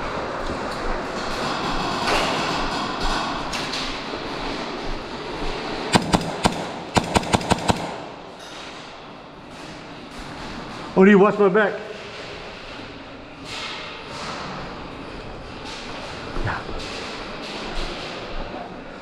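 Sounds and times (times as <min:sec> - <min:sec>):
steady background din: 0:00.0 - 0:19.0
airsoft gun shots: 0:05.9 - 0:08.4.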